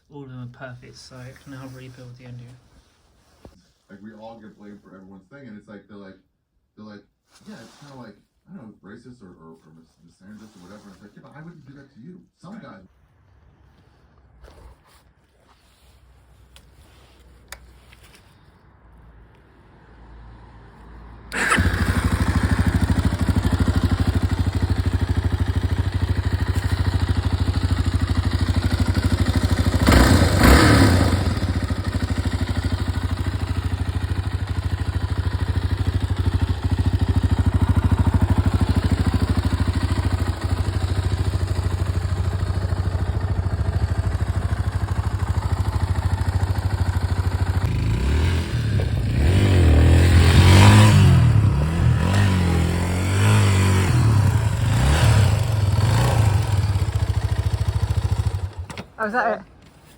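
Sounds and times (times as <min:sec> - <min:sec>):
motorcycle engine idling and revving: 0:21.2 - 0:59.4.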